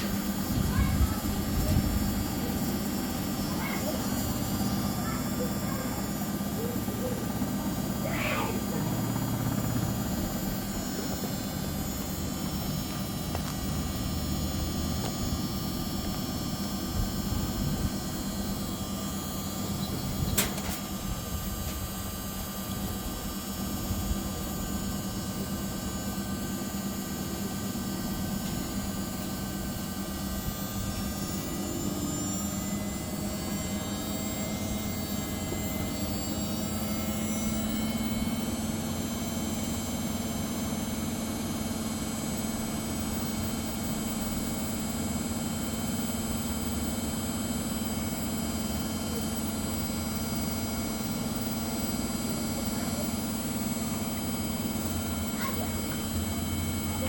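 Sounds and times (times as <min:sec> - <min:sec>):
washing machine motor hum: 0:00.0 - 0:57.0
sharp click: 0:20.3 - 0:20.8.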